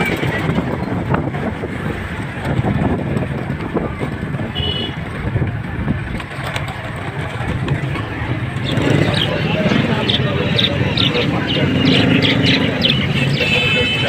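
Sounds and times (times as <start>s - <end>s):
wind on microphone: 0.0s - 13.5s
street market noise: 0.0s - 14.0s
traffic: 0.0s - 14.0s.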